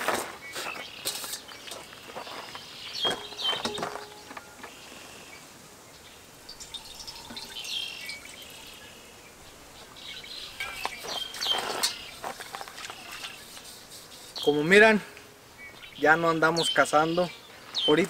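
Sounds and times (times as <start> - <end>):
birds chirping: 0.0 - 18.0
knocks and clatters: 3.0 - 4.7.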